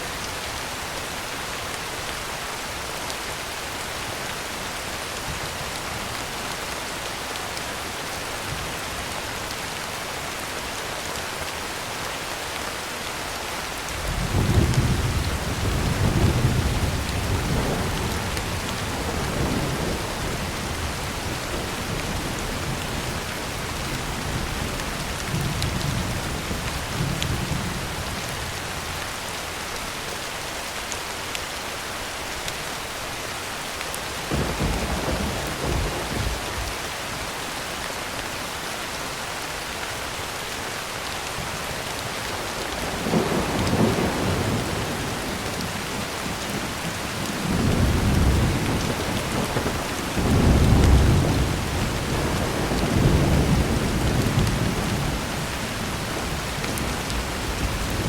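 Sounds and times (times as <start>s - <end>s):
heavy rain on a tin roof: 0.0s - 58.0s
thunder rumbling: 34.3s - 36.8s.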